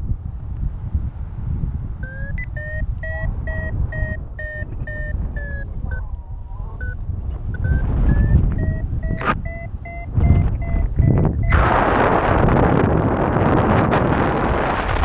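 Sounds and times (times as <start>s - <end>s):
wind over microphone: 0.0s - 15.0s
variometer beeping: 2.0s - 11.8s.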